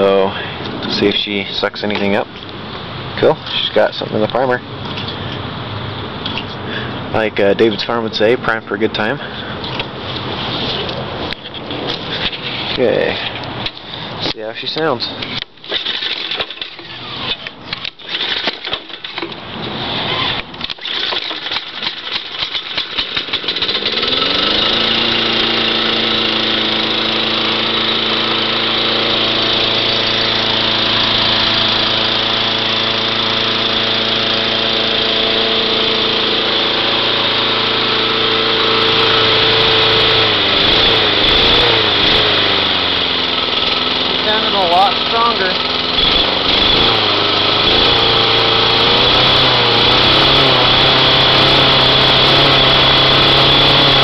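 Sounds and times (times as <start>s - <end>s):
lawn tractor engine running: 9.2s - 54.0s
lawn tractor engine starting: 11.7s - 54.0s.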